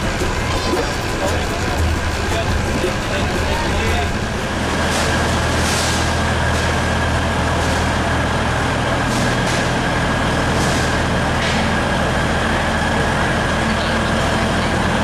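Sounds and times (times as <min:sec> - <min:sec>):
train rumble inside coach: 0:00.0 - 0:15.0.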